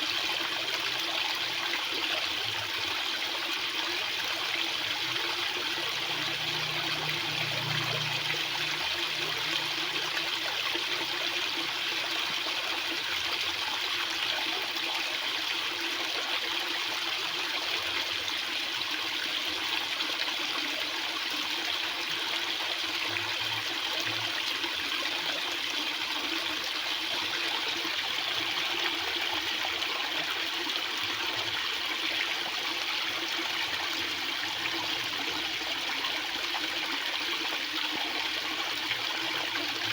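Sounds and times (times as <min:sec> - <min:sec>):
water rushing: 0:04.7 - 0:11.2.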